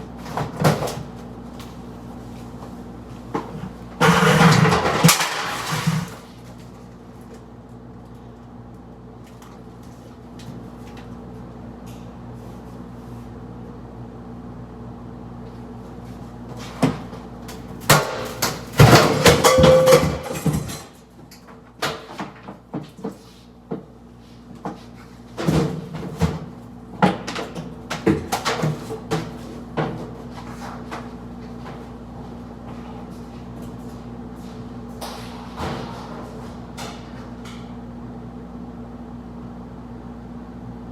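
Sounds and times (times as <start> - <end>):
clattering: 18.8 - 20.9.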